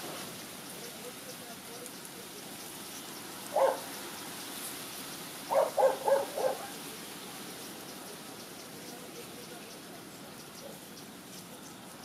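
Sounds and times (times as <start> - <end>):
steady outdoor hiss: 0.0 - 12.0
bird hooting: 3.6 - 3.8, 5.5 - 6.7.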